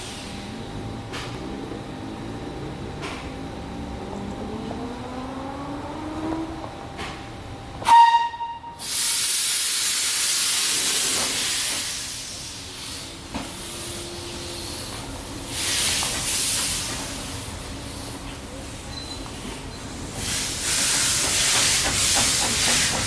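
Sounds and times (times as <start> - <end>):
steam locomotive whistle: 7.8 - 9.0
hissing steam blasts: 8.8 - 18.2, 20.0 - 23.0.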